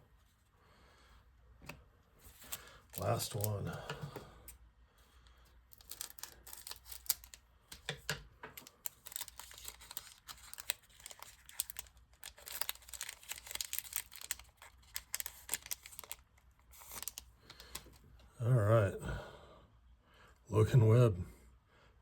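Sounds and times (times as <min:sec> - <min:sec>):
cards being handled: 0:02.2 - 0:04.2, 0:05.7 - 0:18.1
foil wrapper tearing and crinkling: 0:02.3 - 0:03.7, 0:05.7 - 0:07.9, 0:08.6 - 0:17.9.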